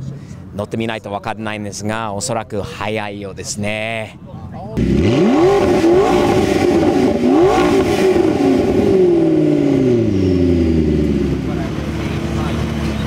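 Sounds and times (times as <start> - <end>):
car engine revving: 4.8 - 13.0.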